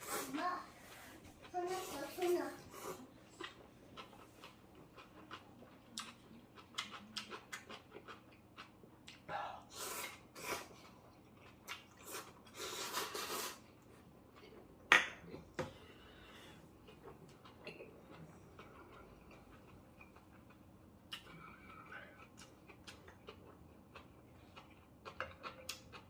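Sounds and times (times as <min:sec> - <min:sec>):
slurping noodles: 0:12.0 - 0:13.7.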